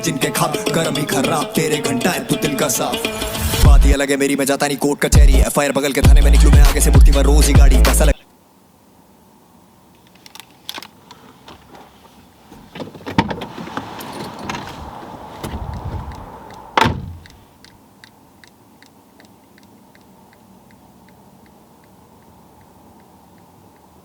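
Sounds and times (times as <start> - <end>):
clicks and rustling: 9.9 - 20.1
car door shutting: 12.5 - 17.4
light regular ticks: 15.7 - 24.0.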